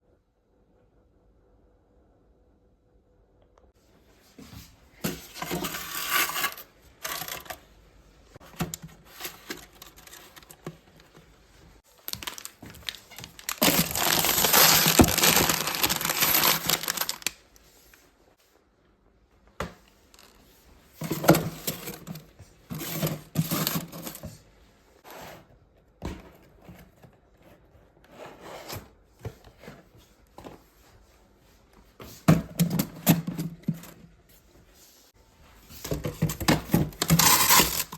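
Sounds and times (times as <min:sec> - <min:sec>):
plastic packaging crinkling: 0:11.9 - 0:17.5.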